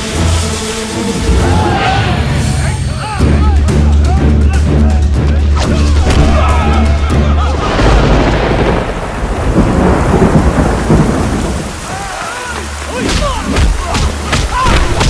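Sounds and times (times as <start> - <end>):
heavy rain: 0.0 - 15.0
low bass: 1.1 - 11.0
thunder rumbling: 5.6 - 15.0.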